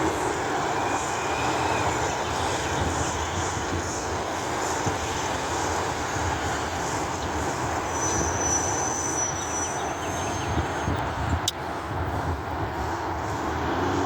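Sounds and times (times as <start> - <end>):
thin high squeal: 7.6 - 11.0.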